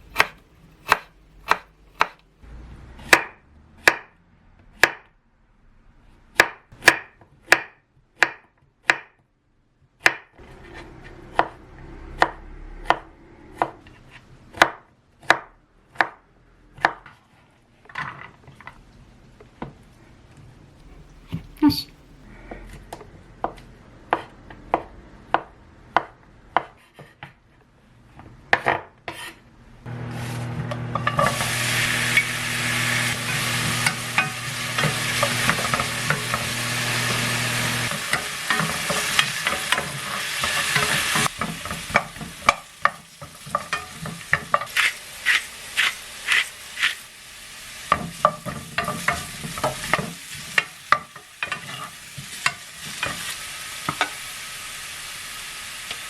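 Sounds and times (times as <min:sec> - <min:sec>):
food sizzling in a pan: 0:29.9 - 0:56.0.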